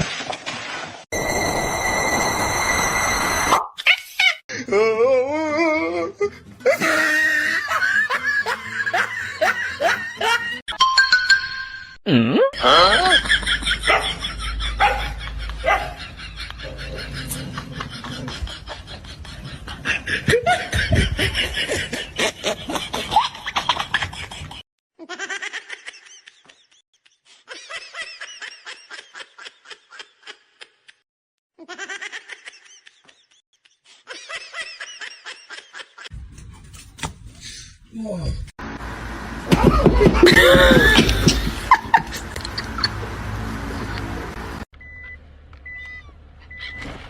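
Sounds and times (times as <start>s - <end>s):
people laughing: 6.6s - 10.6s, 12.6s - 30.4s, 39.7s - 43.1s.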